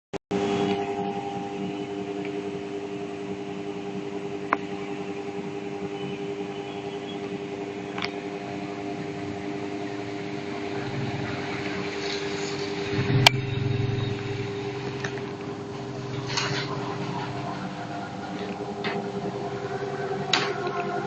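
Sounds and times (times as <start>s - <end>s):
electric fan motor humming: 0.3s - 21.0s.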